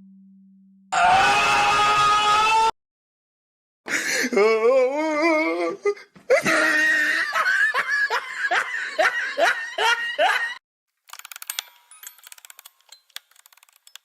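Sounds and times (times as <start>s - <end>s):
person laughing: 3.9s - 10.6s
faint clicking and tinkling: 11.2s - 14.0s.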